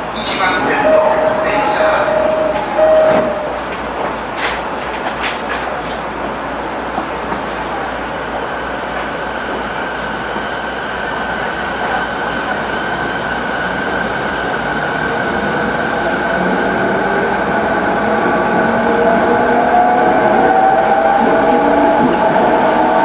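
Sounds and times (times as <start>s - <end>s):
electric train inverter whine: 0.0s - 4.1s
rail noise: 0.0s - 23.0s.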